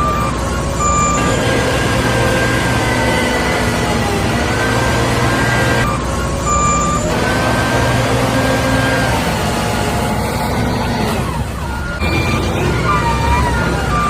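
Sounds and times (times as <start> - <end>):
short beeping tones: 0.0 - 9.2
heavy vehicle engine: 0.0 - 14.0.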